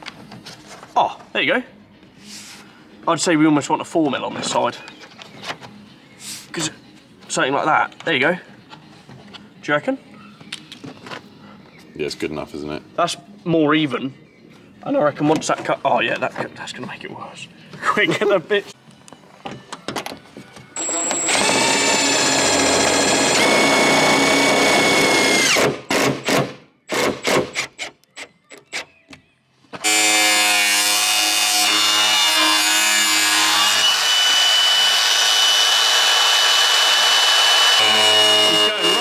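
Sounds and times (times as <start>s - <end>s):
power tool whining: 20.8s - 25.7s, 29.8s - 39.0s.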